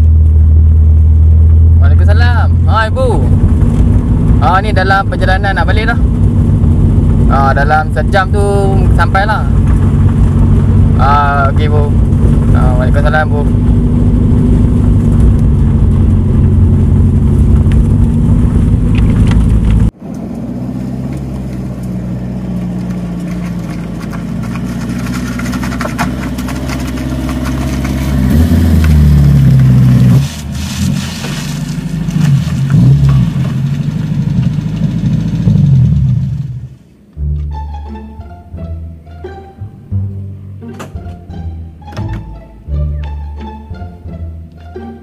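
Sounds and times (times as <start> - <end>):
car engine running: 0.0 - 45.0.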